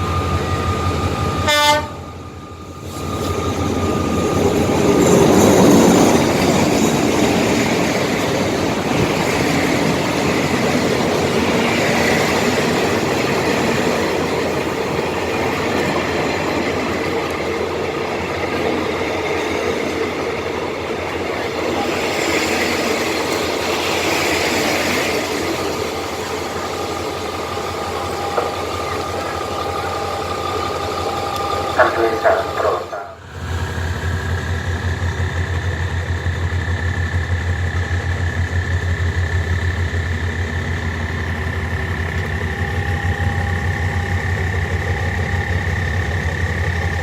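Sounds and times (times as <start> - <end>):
train rumbling and rattling by: 0.0 - 47.0
train horn blast: 1.4 - 2.2.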